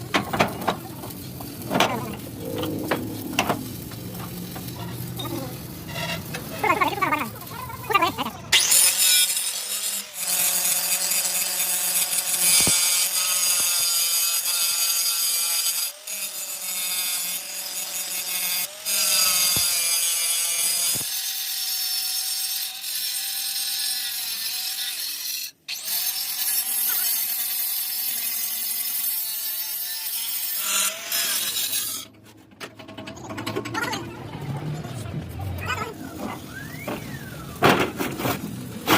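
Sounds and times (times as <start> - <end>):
power tool working metal: 0.0 - 7.6, 8.5 - 24.5.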